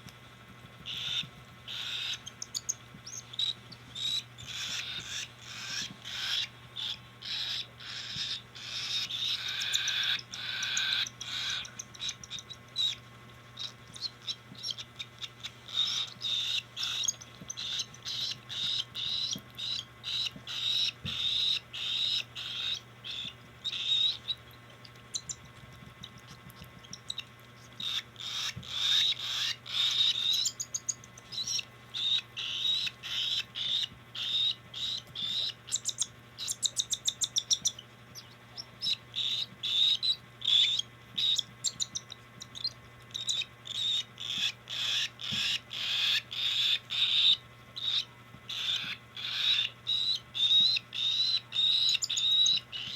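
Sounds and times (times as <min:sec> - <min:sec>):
chicks raspy begging calls: 0:00.8 - 0:25.5, 0:26.8 - 0:52.9.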